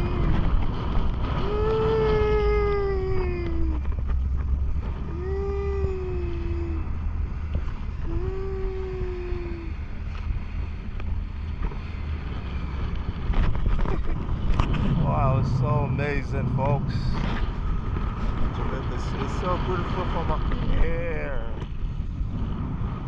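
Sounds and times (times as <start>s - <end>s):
wind rumble on microphone: 0.0s - 23.0s
voice holding long notes: 5.1s - 6.9s, 8.0s - 9.8s.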